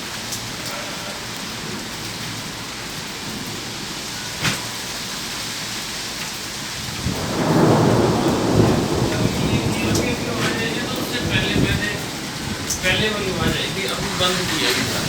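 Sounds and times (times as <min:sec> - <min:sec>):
rain hissing: 0:00.0 - 0:15.0
thunder rumbling: 0:06.7 - 0:15.0.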